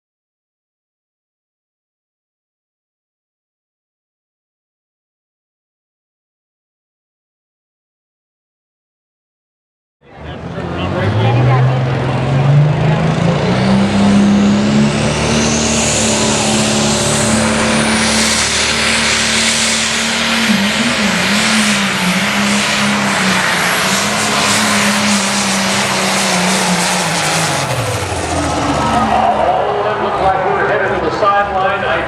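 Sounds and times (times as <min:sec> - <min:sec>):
diesel engine revving: 0:10.0 - 0:32.0
high whine: 0:10.0 - 0:32.0.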